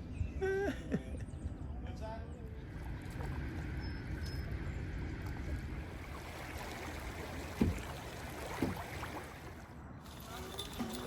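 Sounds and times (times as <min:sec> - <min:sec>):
boat rumbling on river: 0:00.0 - 0:11.0
wind: 0:00.0 - 0:11.0
water noise: 0:02.6 - 0:11.0.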